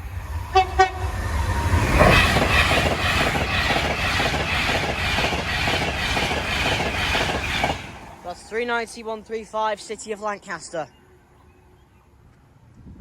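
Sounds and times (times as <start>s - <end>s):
electric train passing: 0.0s - 11.8s
train wheels clacking on rail joints: 1.5s - 8.2s.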